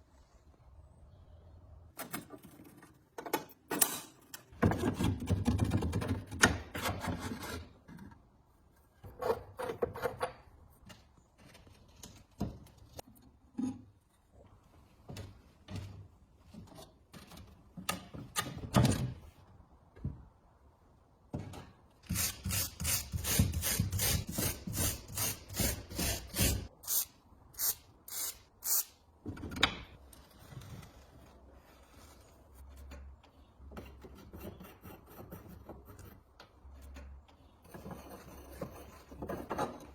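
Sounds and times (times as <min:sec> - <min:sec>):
clicks and knocks of tools: 0:02.0 - 0:04.9.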